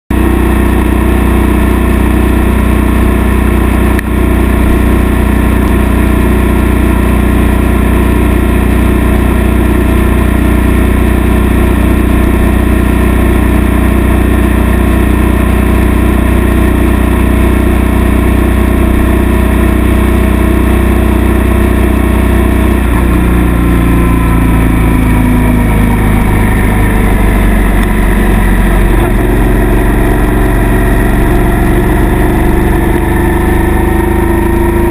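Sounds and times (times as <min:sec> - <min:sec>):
motorcycle engine running: 0:00.1 - 0:34.9.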